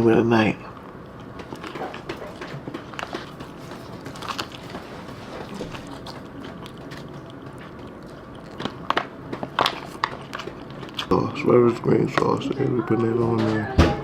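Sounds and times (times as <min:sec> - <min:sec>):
person chewing food: 0:00.6 - 0:12.6.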